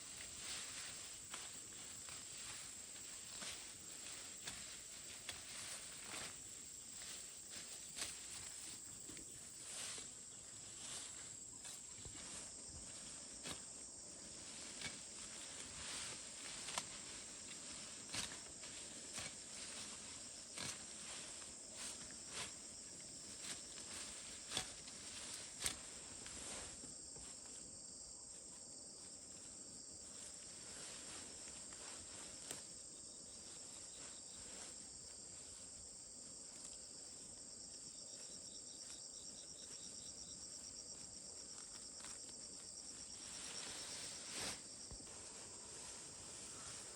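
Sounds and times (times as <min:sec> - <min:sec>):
crickets chirring: 0:00.0 - 0:46.9.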